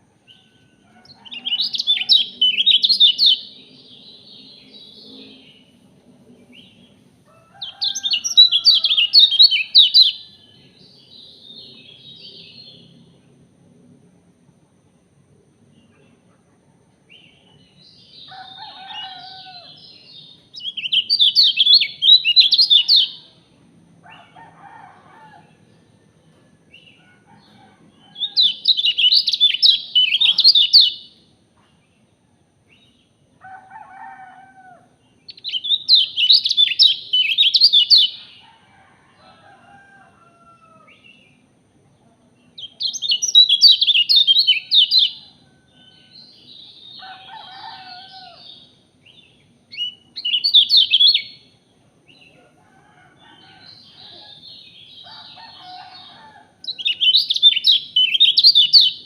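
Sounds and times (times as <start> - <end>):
chattering high-pitched bird song: 1.4 - 3.5, 7.7 - 10.2, 20.6 - 23.2, 28.3 - 31.1, 35.3 - 38.3, 42.6 - 45.2, 49.8 - 51.4, 56.7 - 59.0.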